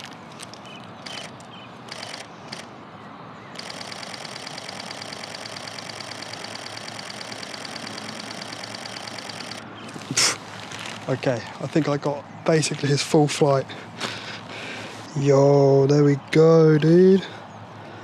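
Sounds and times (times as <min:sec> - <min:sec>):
camera shutter clicking: 0:01.0 - 0:02.7, 0:03.6 - 0:10.2.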